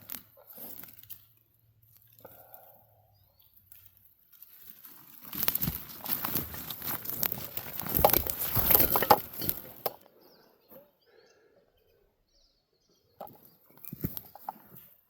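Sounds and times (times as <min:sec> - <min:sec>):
rustling and crunching: 0:00.0 - 0:10.0, 0:13.2 - 0:15.0
faint bird chirps: 0:09.4 - 0:14.8.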